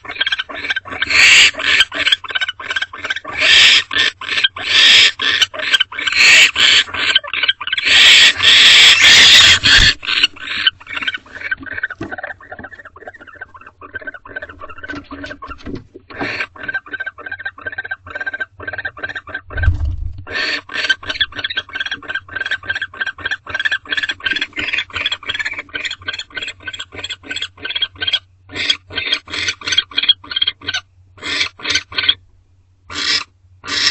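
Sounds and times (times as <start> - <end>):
owls chittering: 0.0 - 32.2, 32.9 - 33.9
low thump: 19.6 - 20.3.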